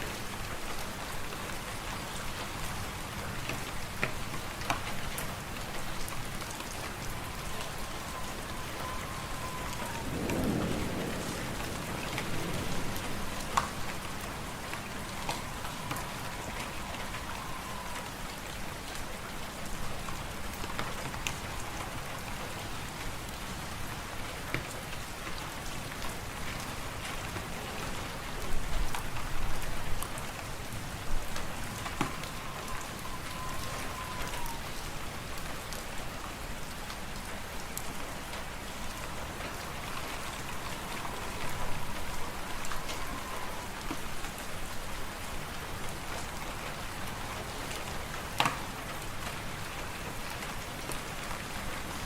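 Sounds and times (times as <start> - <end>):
faint whistling tone: 7.1 - 10.3, 13.2 - 18.0, 31.8 - 35.0, 40.5 - 43.7.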